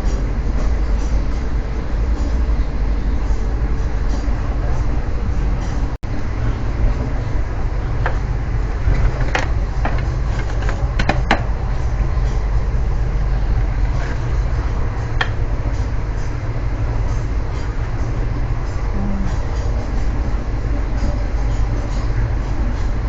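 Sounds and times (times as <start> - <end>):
train running rumble: 0.0 - 23.0
sharp clicks and knocks: 8.8 - 11.5.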